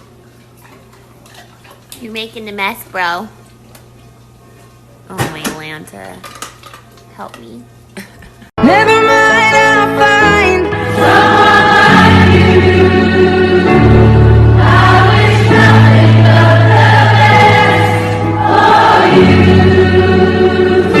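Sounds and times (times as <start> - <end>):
gospel choir singing: 8.7 - 21.0.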